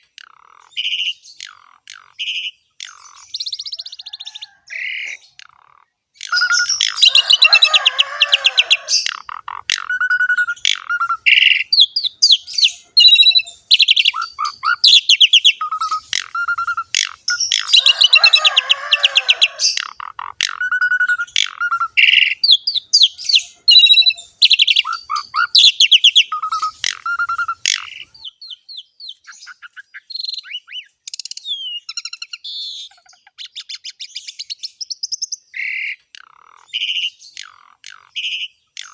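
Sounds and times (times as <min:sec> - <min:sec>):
starling chattering song: 0:00.2 - 0:28.6.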